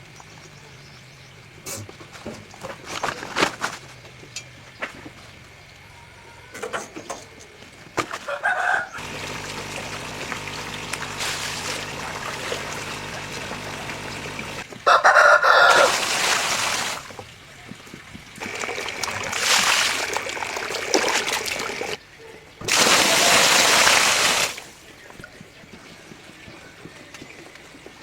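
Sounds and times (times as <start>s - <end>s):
rooster crowing: 8.2s - 9.0s, 14.8s - 16.1s
running water: 9.0s - 14.6s, 15.6s - 22.0s, 22.6s - 26.4s.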